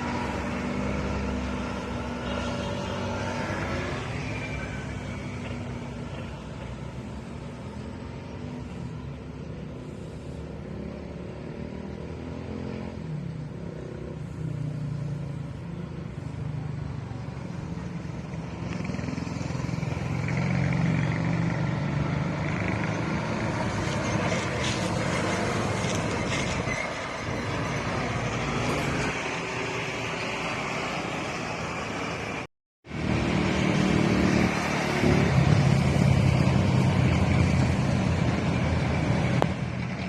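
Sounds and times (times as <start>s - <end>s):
heavy vehicle passing: 0.0s - 40.0s
passing vehicles engine hum: 0.0s - 40.0s
tyre and road noise: 0.0s - 40.0s.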